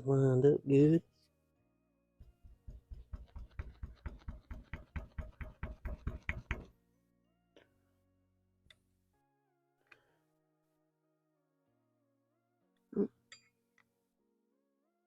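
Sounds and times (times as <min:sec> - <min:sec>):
background music: 0:00.0 - 0:15.0
light tapping knocks: 0:02.2 - 0:06.7.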